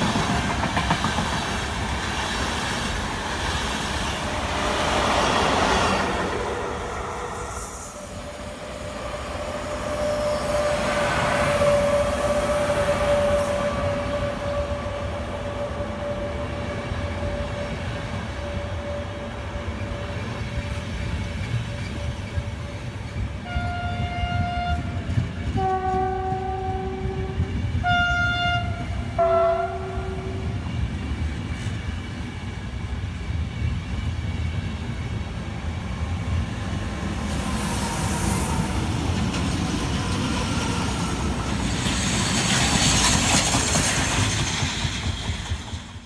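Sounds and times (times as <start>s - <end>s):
train rumbling: 0.0s - 46.0s
train horn blasts: 6.0s - 20.6s, 21.4s - 30.6s.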